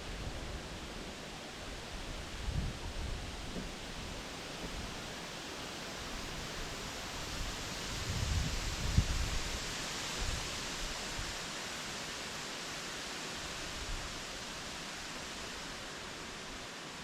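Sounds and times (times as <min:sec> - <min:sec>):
strong wind through trees: 0:00.0 - 0:17.0
wind buffeting microphone: 0:02.2 - 0:04.1, 0:07.9 - 0:09.6.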